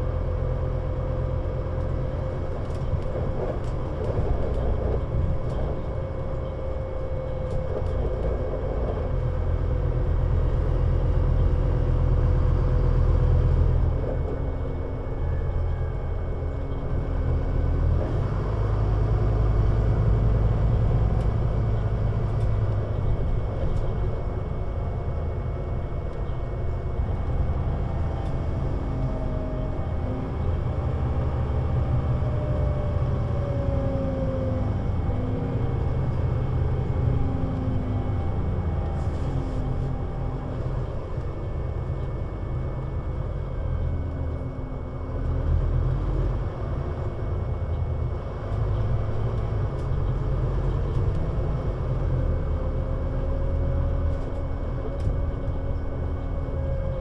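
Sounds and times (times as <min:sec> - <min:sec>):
bus engine under load: 0:00.0 - 0:57.0.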